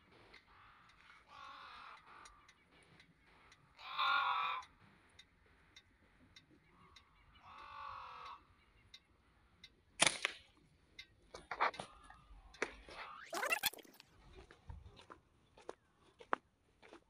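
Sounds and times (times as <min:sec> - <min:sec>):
bird harsh call: 0:00.4 - 0:02.6, 0:03.7 - 0:04.8, 0:06.7 - 0:08.8.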